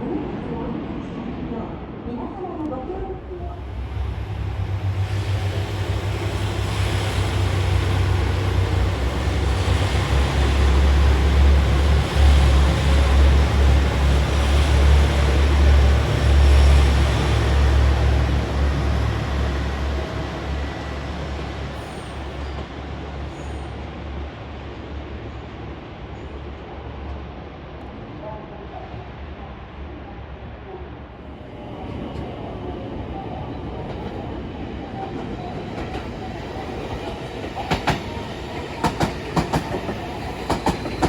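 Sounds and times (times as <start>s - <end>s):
train passing: 0.0s - 41.0s.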